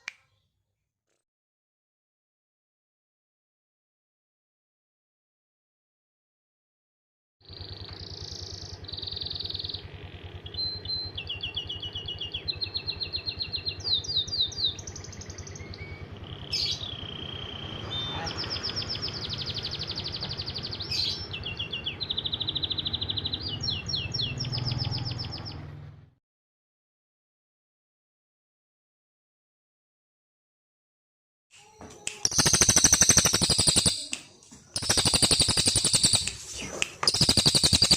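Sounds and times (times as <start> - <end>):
songbird singing trills: 7.5 - 25.6, 31.6 - 37.9.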